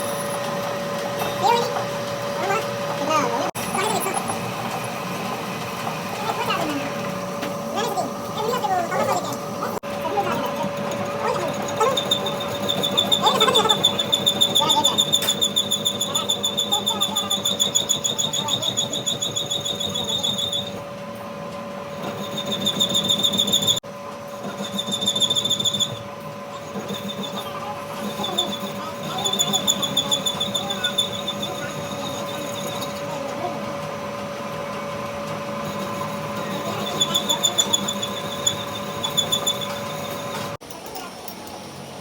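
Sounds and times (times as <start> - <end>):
machine hum: 0.0 - 40.6
high-pitched pulsing squeal: 10.1 - 20.8, 21.9 - 33.2, 35.6 - 40.6.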